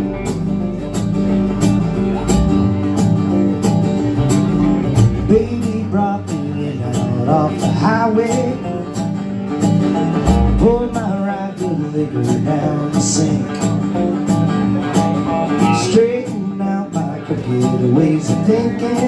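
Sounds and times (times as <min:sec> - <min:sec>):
strummed guitars: 0:00.0 - 0:19.0
bending lead melody: 0:01.2 - 0:06.0, 0:10.2 - 0:11.3
steady drum beat: 0:02.2 - 0:03.3, 0:04.2 - 0:05.8, 0:10.2 - 0:11.4.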